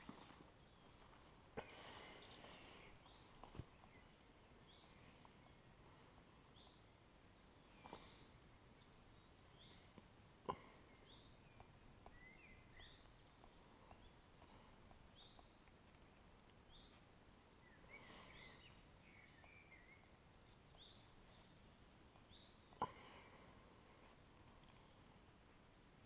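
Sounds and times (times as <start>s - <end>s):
faint bird chirps: 0.0s - 25.5s.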